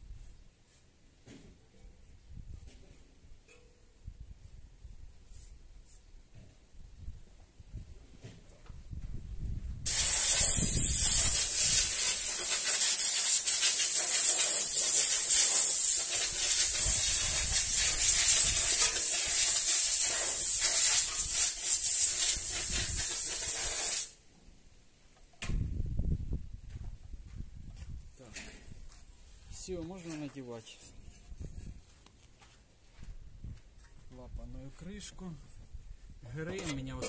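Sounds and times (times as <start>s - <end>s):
compressed air blow gun hiss: 9.8s - 24.2s.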